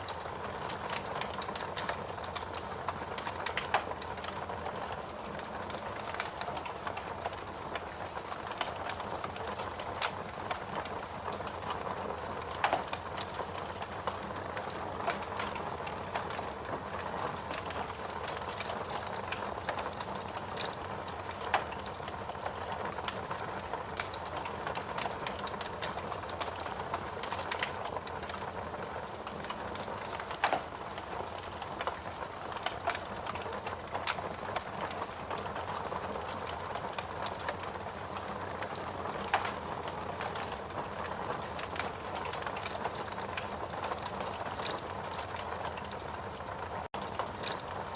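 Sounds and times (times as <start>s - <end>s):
fire hissing and crackling: 0.0s - 47.9s
loud fire pops: 23.9s - 46.0s.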